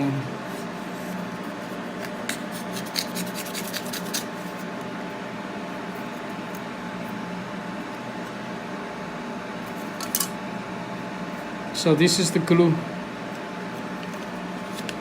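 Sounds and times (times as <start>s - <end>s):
steady machine hum: 0.0s - 15.0s
tools clicking and scratching: 2.0s - 4.3s.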